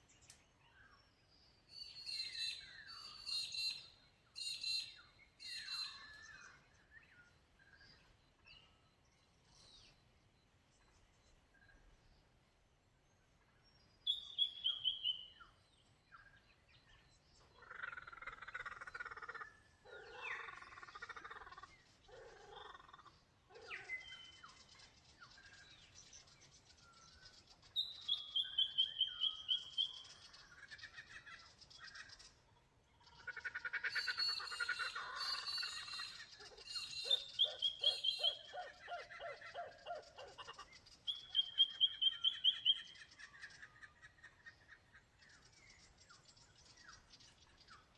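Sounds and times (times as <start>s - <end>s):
birds chattering calls: 13.2s - 47.9s.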